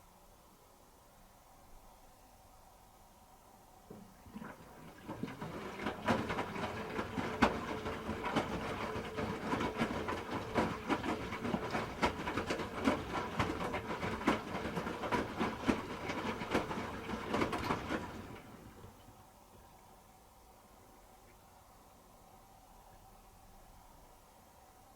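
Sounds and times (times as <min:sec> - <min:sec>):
laundry knocking in drum: 0:03.9 - 0:18.5
washing machine drum turning: 0:03.9 - 0:19.0.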